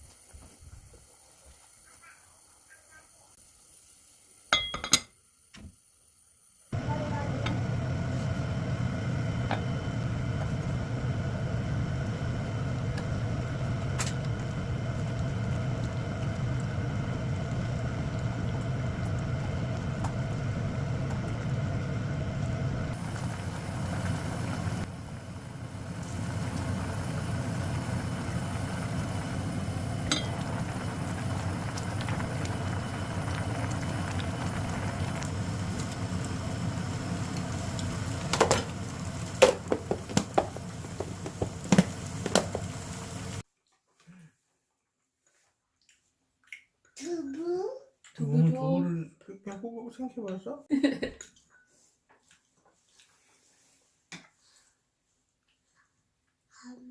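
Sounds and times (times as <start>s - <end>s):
mechanical hum: 3.7s - 43.4s.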